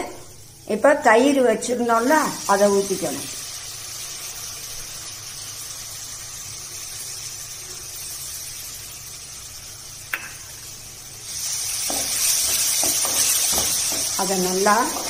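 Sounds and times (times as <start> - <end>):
masala sizzling in a pan: 0.0 - 15.0
spoon stirring: 11.9 - 14.2.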